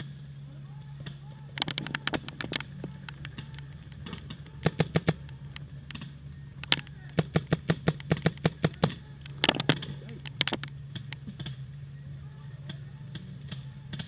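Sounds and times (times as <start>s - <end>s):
steady low hum: 0.0s - 14.0s
paintball markers firing: 1.6s - 11.6s.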